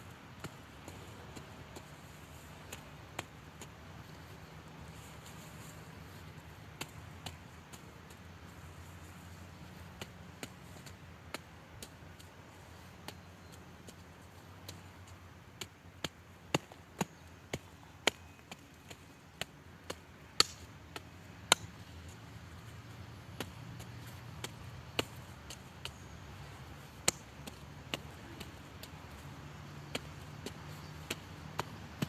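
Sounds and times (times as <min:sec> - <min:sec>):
garden tool chopping: 0:14.6 - 0:32.0.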